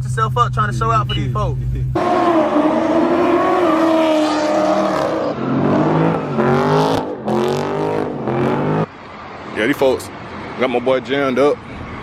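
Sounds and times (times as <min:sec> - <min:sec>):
car engine revving: 0:00.8 - 0:09.0.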